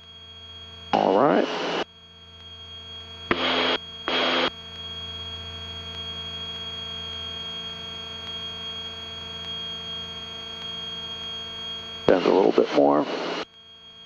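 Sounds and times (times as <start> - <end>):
high-pitched whine: 0.1 - 14.0
aircraft engine drone: 0.9 - 1.8, 3.2 - 4.5, 9.3 - 13.5.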